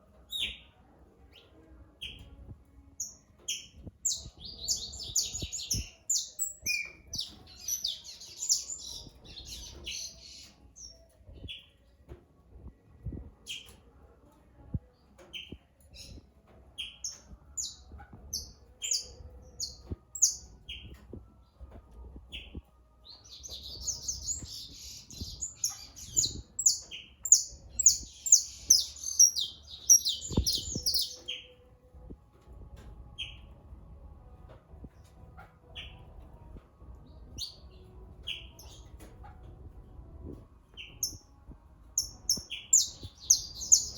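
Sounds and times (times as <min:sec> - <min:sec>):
songbirds twittering: 0:03.0 - 0:11.8, 0:16.8 - 0:31.5, 0:42.0 - 0:43.9.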